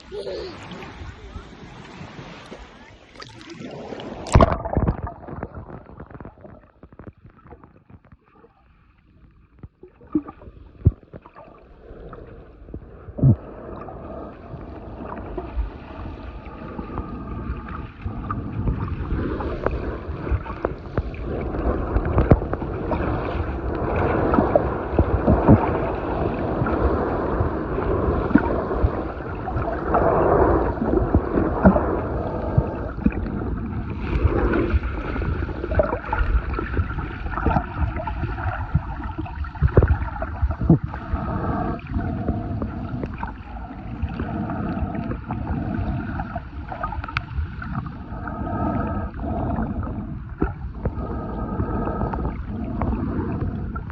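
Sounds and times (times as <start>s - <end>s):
underwater water sloshing: 0.0s - 53.9s
underwater clicks and knocks: 4.2s - 8.5s, 9.3s - 11.5s, 21.9s - 23.0s.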